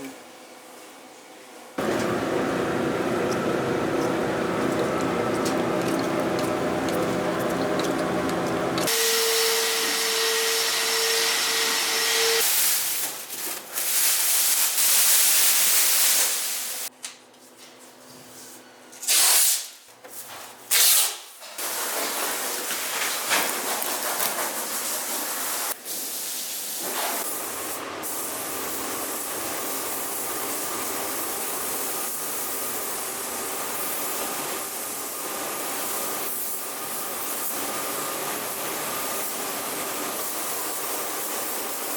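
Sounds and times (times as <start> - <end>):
air tool whine: 7.6 - 12.5
loud blasts of hiss: 8.9 - 13.0, 13.9 - 16.9.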